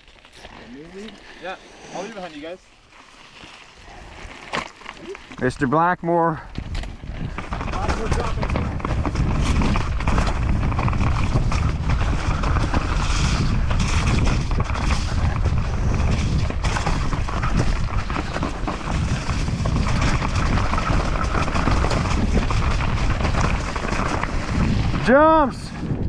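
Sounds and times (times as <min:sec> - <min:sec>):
bike rattling and clicking: 0:02.8 - 0:26.0
wind buffeting microphone: 0:06.4 - 0:26.0.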